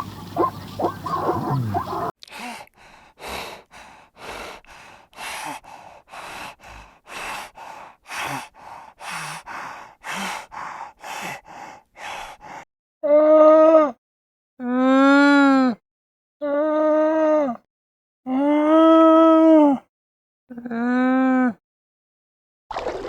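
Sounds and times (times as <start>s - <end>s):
animal breathing heavily: 0.0s - 2.1s, 2.7s - 12.6s
animal pitched call: 0.0s - 2.1s.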